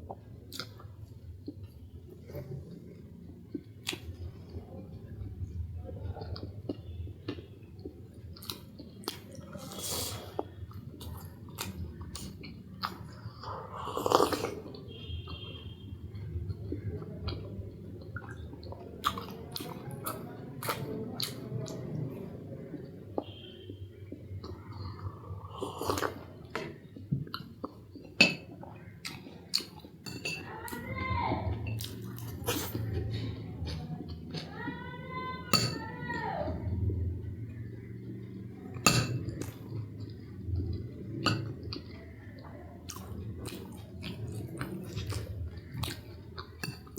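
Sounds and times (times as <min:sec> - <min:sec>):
person chewing food: 0:00.0 - 0:35.9, 0:36.8 - 0:46.9
cutlery clinking on dishes: 0:28.1 - 0:28.6, 0:30.0 - 0:30.5, 0:35.5 - 0:36.0, 0:38.8 - 0:39.6, 0:41.3 - 0:41.6, 0:46.6 - 0:46.9.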